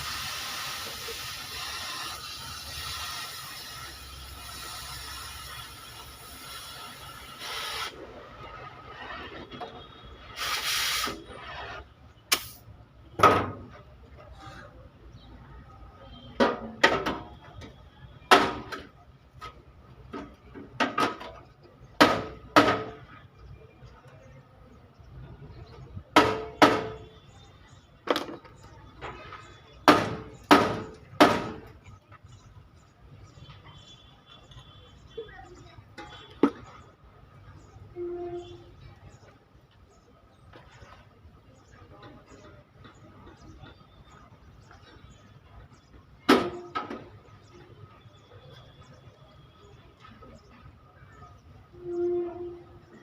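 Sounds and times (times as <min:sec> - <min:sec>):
air hissing from nozzle: 0:00.0 - 0:08.0, 0:10.3 - 0:11.3.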